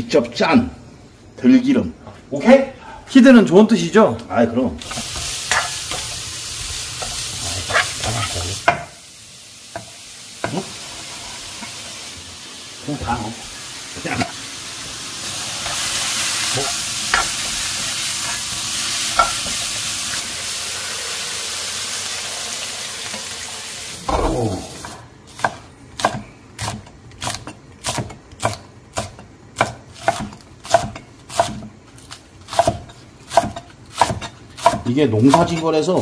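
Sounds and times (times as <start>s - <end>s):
spatula scraping wok: 4.8s - 9.0s, 9.7s - 12.2s, 13.5s - 21.0s
food sizzling in oil: 4.8s - 25.6s
knife chopping on wooden board: 25.4s - 31.7s, 32.5s - 35.6s.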